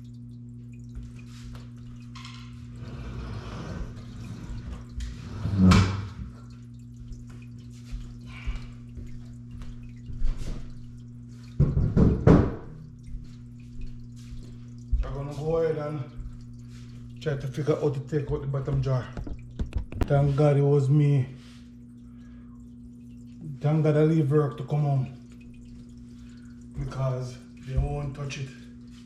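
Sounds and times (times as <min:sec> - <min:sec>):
steady low hum: 0:00.0 - 0:29.0
knocks and clunks of parts: 0:18.3 - 0:20.2.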